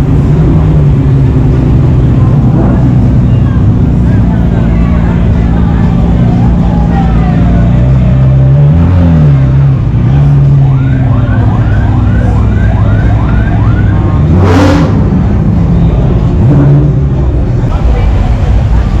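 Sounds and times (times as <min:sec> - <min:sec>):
engines rumbling: 0:00.0 - 0:19.0
vehicle siren wailing and whooping: 0:10.0 - 0:14.9.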